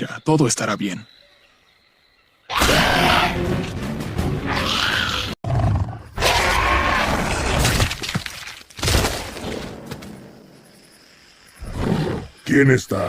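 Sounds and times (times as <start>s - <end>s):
crashing and smashing: 7.3s - 10.0s.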